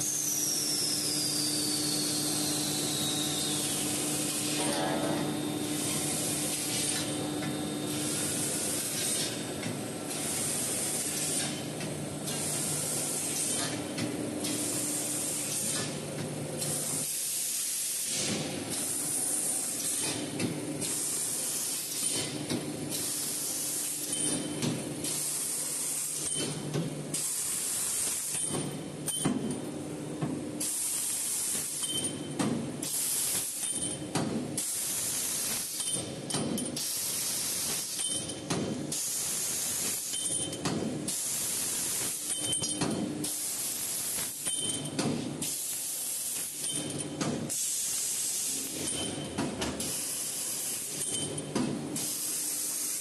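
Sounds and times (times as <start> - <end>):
steady machine hum: 1.1 - 17.0.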